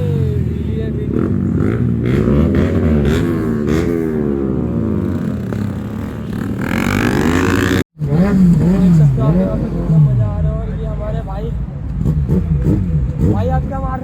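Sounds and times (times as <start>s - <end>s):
motorcycle engines revving: 0.0s - 14.0s.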